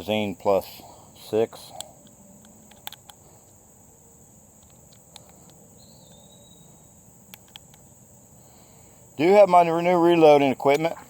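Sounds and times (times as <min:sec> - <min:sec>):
crickets droning: 0:00.0 - 0:11.0
faint clicks: 0:04.6 - 0:05.6
thin whistle: 0:05.8 - 0:06.9.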